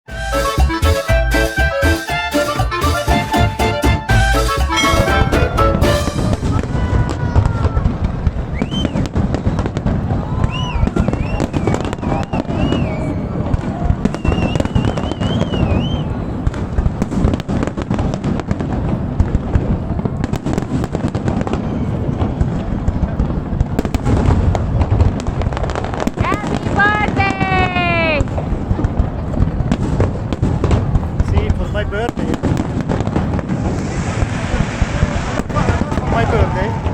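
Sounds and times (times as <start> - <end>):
fireworks bangs and crackling: 1.4 - 36.9
high wavering firework whistles: 5.9 - 7.8, 8.4 - 16.5.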